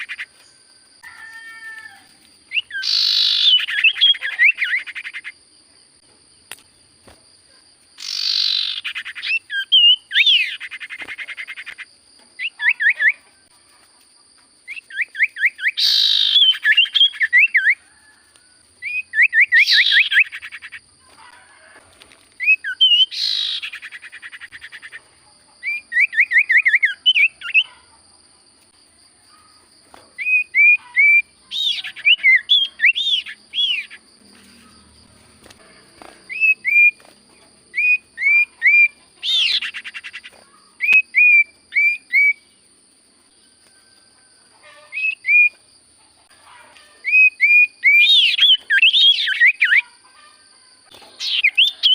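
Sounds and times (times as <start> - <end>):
bird singing whistled notes: 2.5 - 5.3, 8.0 - 11.8, 14.6 - 17.8, 18.8 - 20.8, 22.4 - 25.0, 25.6 - 27.7, 30.2 - 34.0, 36.3 - 37.0, 37.7 - 40.2, 40.8 - 42.5, 44.9 - 45.6, 47.0 - 49.8, 51.2 - 51.9.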